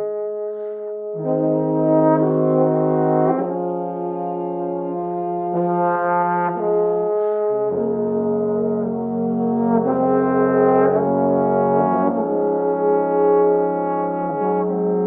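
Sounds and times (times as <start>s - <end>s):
trombones playing in harmony: 0.0s - 15.0s.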